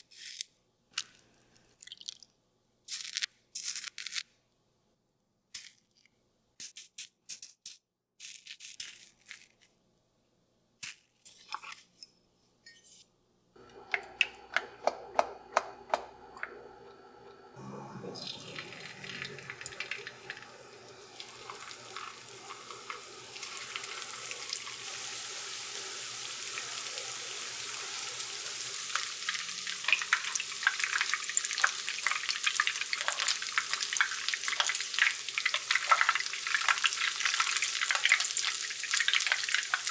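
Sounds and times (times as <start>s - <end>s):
crinkles and taps: 13.6s - 16.6s
food sizzling in a pan: 15.4s - 39.9s.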